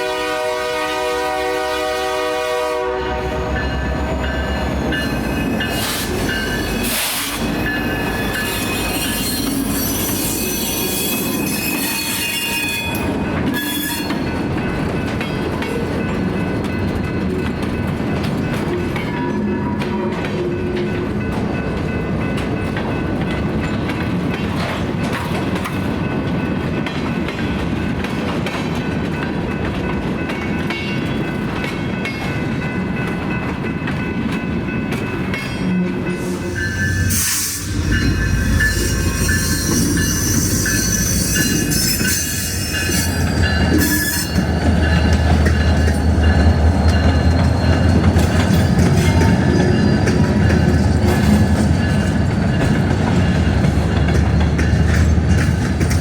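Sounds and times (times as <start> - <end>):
train wheels squealing: 3.3 - 14.4, 36.1 - 56.0
diesel locomotive rumble: 35.9 - 56.0.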